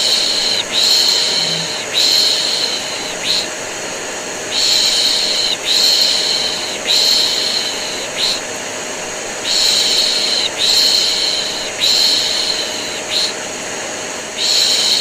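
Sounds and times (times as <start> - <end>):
person shushing: 0.0 - 3.5
vacuum cleaner running: 0.0 - 15.0.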